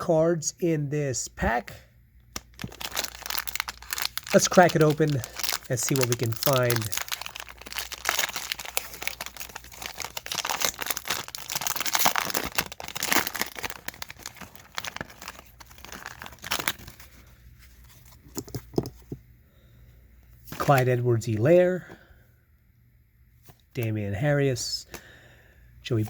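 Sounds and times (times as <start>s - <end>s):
card packaging tearing and crinkling: 2.4s - 17.2s.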